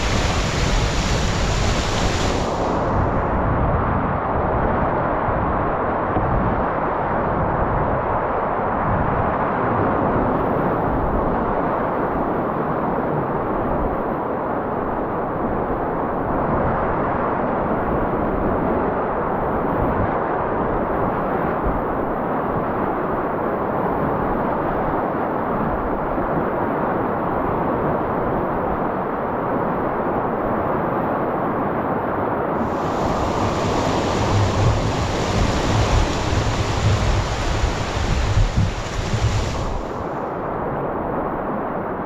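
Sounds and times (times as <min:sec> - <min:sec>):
river water rushing: 0:00.0 - 0:03.2, 0:32.6 - 0:40.4.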